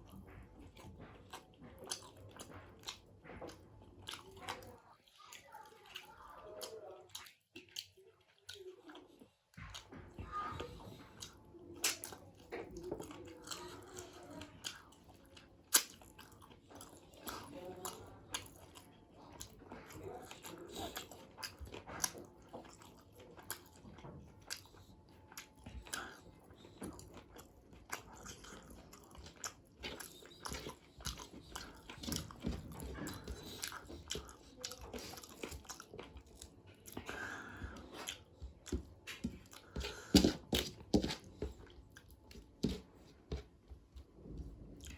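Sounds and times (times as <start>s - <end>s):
wet chewing mouth smacks: 14.6s - 42.8s.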